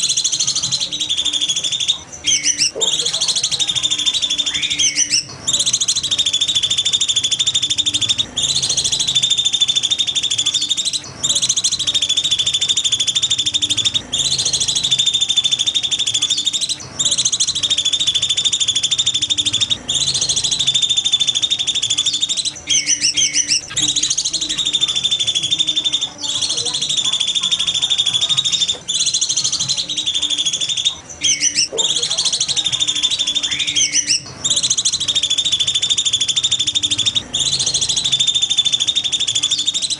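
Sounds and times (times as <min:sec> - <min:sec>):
falling whistled bird notes: 0:00.0 - 0:39.9
songbird trilling: 0:00.0 - 0:39.9.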